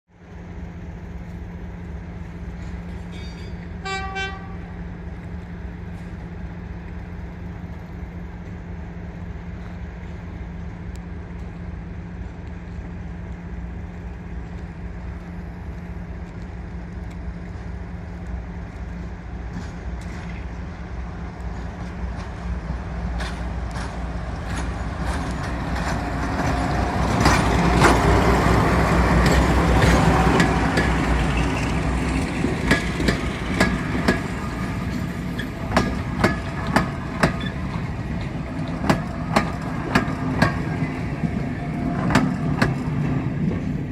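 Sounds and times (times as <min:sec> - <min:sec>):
diesel locomotive engine hum: 0:00.1 - 0:43.9
locomotive horn toot: 0:03.8 - 0:04.7.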